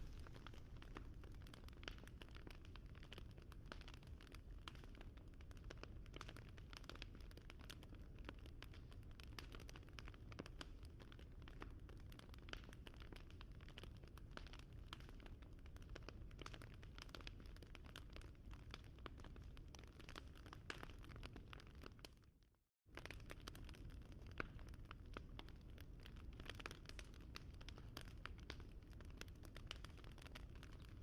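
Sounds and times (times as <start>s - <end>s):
bonfire crackling: 0.0s - 5.5s, 23.0s - 31.0s.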